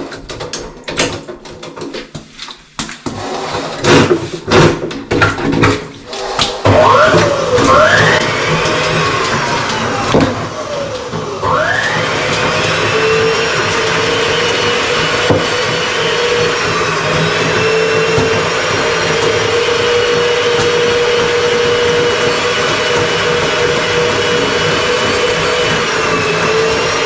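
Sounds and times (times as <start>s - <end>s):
power tool motor running: 6.1s - 27.0s.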